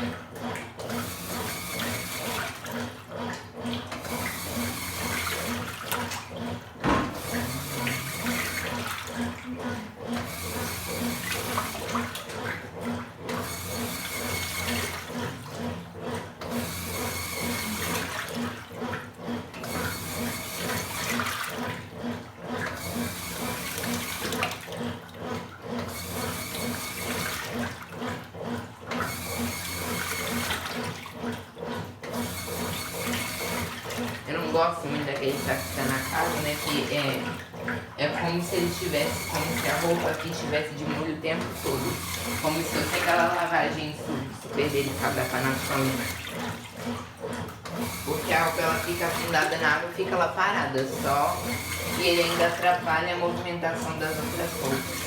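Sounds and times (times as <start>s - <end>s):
motor hum: 0.0s - 55.0s
water sloshing in washing machine: 0.0s - 55.0s
knock: 6.8s - 7.4s.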